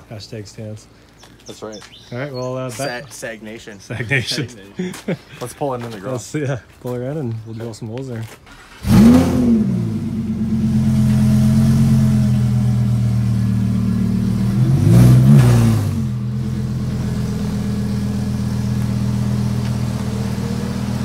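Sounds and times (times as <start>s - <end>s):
sports car engine idling and revving: 8.6s - 21.0s.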